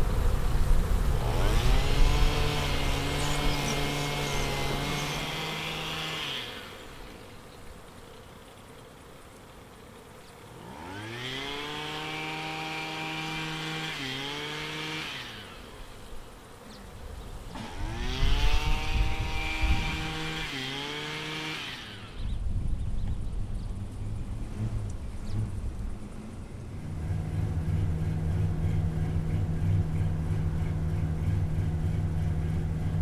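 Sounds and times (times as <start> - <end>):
low rumbling: 0.0 - 7.5, 21.9 - 33.0
motor whining: 0.0 - 33.0.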